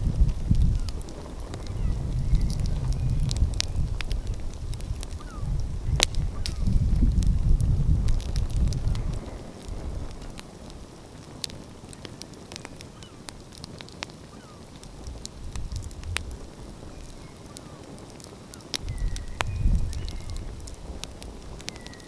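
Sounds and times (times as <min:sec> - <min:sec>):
wood fire crackling and popping: 0:00.0 - 0:22.0.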